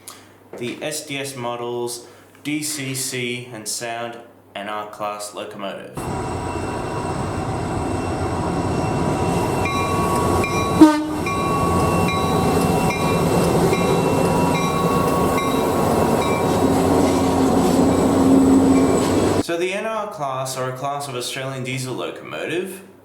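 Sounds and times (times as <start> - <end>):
repeating warning tone: 6.0 - 19.4
train rumbling: 6.0 - 19.4.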